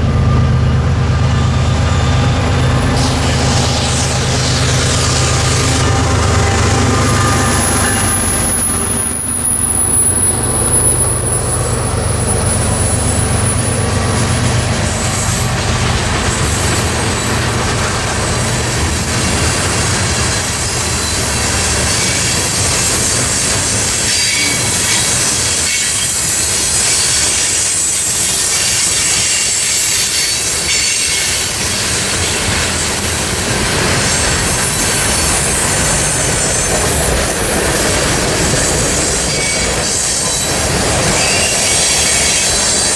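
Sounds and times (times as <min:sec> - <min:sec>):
freight train cars rolling: 0:00.0 - 0:42.9
high wheel squeal: 0:00.0 - 0:42.9.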